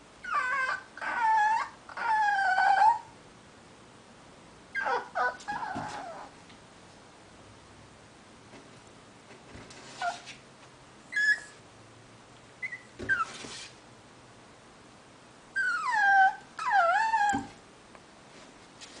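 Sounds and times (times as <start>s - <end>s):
dog whining: 0.2s - 3.1s, 4.7s - 6.4s, 9.9s - 10.3s, 11.1s - 11.6s, 12.6s - 13.5s, 15.6s - 17.6s.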